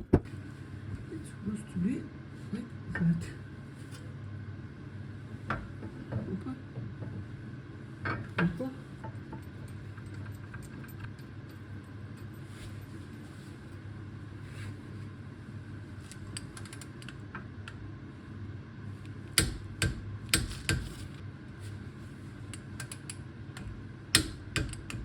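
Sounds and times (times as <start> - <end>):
steady low hum: 0.0 - 25.0
light clicks of tools: 22.5 - 23.2.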